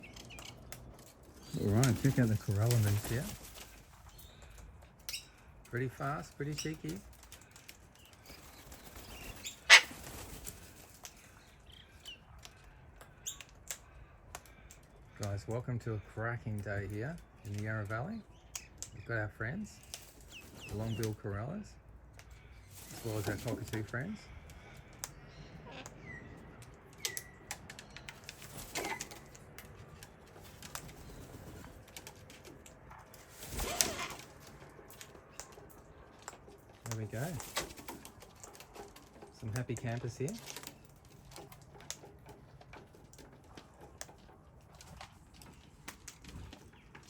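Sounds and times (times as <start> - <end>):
light clicks and taps: 34.4 - 47.0.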